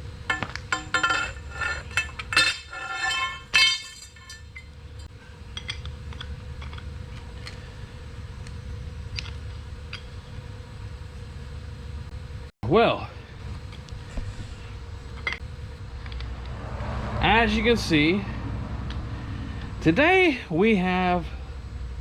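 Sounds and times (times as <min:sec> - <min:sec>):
low steady hum: 0:00.0 - 0:22.0
metal pieces clanking: 0:00.3 - 0:04.8.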